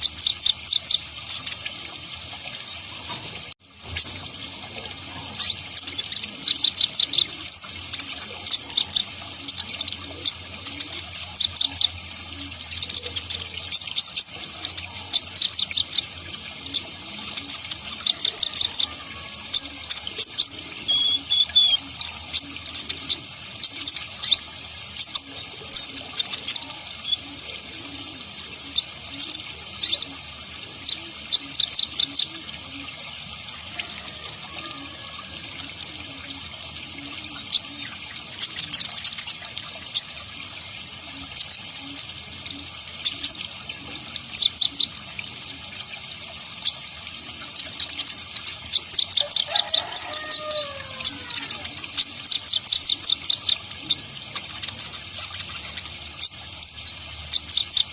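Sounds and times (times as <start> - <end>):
bird chipping and trilling: 0.0 - 1.7, 3.0 - 30.1, 47.5 - 57.9.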